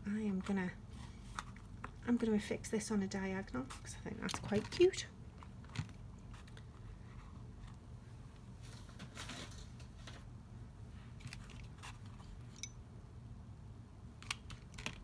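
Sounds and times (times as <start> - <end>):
faint low hum: 0.0 - 15.0
card and ribbon rustling: 3.4 - 7.7.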